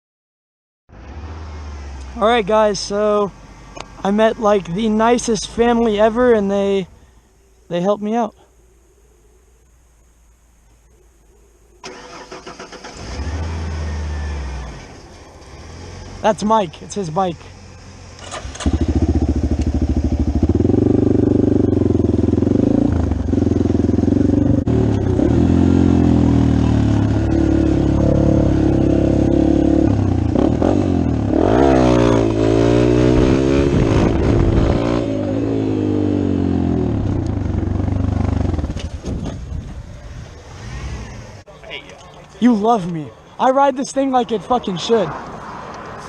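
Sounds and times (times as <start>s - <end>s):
dirt bike engine revving: 11.8s - 16.7s, 17.7s - 39.2s, 40.5s - 41.4s.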